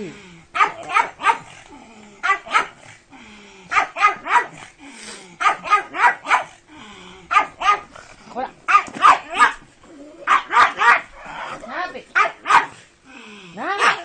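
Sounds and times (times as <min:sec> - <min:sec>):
dog barking: 0:00.6 - 0:01.6, 0:02.2 - 0:02.8, 0:03.7 - 0:04.6, 0:05.4 - 0:06.6, 0:07.3 - 0:07.9, 0:08.7 - 0:09.6, 0:10.3 - 0:11.1, 0:12.2 - 0:12.8, 0:13.7 - 0:14.0.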